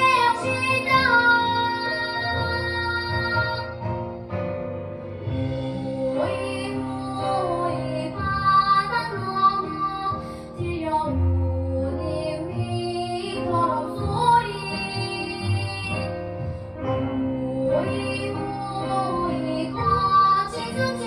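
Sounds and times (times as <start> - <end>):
child singing: 0.0 - 3.8, 17.5 - 21.0
instrumental accompaniment: 0.0 - 21.0.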